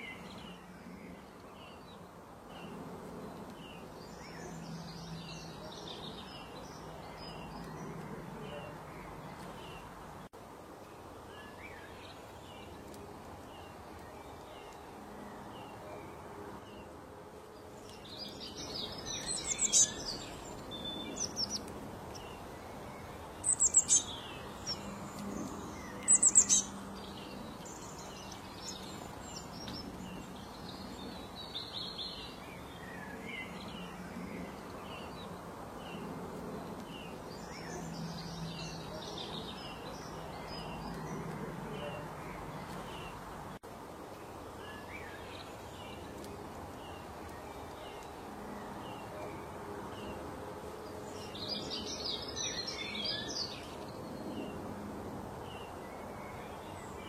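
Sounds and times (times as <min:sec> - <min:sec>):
birds chirping and singing: 0:17.8 - 0:33.9.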